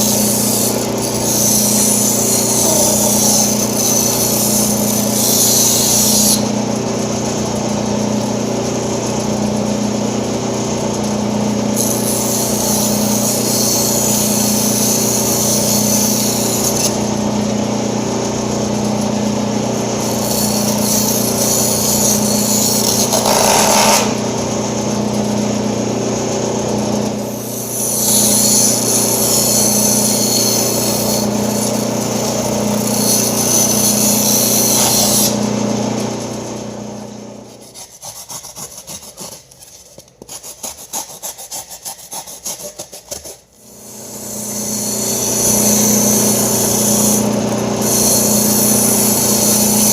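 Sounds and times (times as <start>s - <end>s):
saw blade rasping through foam: 0.0s - 6.5s, 11.8s - 17.1s, 20.0s - 24.2s, 27.2s - 35.5s, 37.5s - 49.9s
band saw motor hum: 0.0s - 37.9s, 43.6s - 49.9s.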